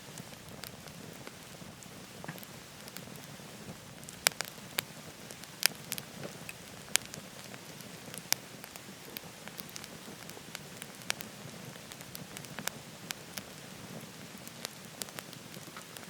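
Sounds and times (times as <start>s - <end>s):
wood fire crackling in stove: 0.0s - 16.0s.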